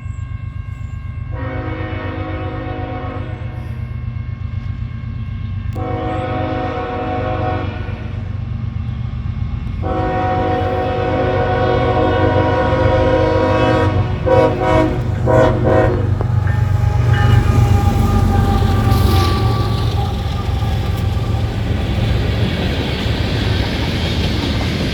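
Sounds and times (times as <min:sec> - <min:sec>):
low rumble of train: 0:00.0 - 0:24.9
locomotive air horn: 0:01.3 - 0:08.4, 0:09.7 - 0:22.5.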